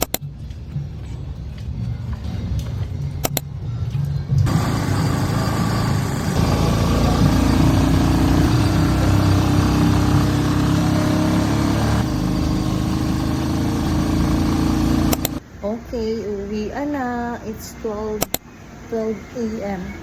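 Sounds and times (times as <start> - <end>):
vehicle engine running: 4.4 - 15.4
road noise: 4.4 - 15.7.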